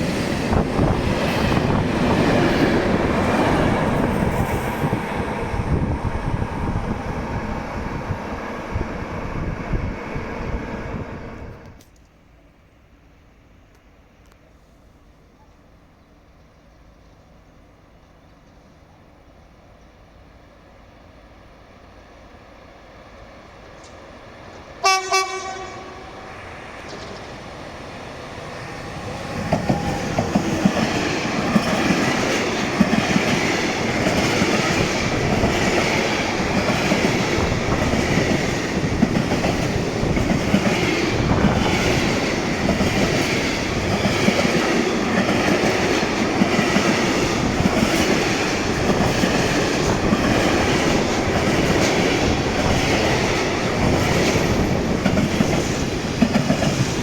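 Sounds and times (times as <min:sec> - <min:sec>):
freight train rumble: 0:00.0 - 0:57.0
locomotive horn blast: 0:24.8 - 0:26.3.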